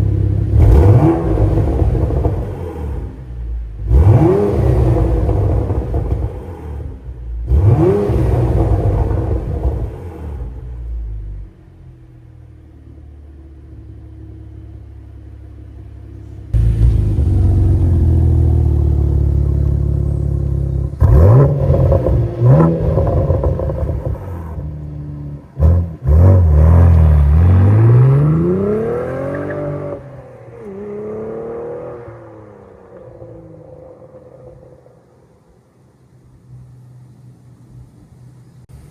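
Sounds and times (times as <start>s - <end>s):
car engine revving: 0.0s - 11.4s, 15.6s - 35.3s.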